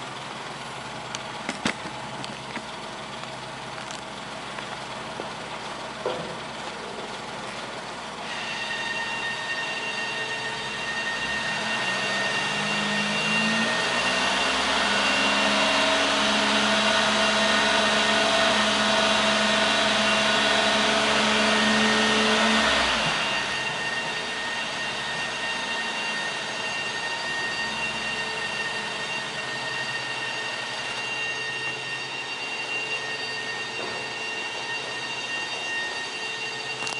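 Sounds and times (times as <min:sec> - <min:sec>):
car engine revving: 0:07.8 - 0:36.6.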